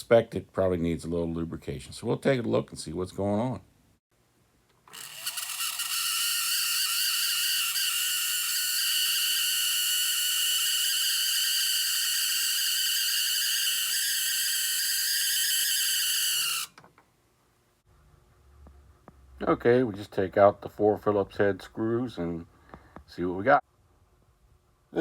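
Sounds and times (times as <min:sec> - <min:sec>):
small motor screeching: 0:04.9 - 0:16.8.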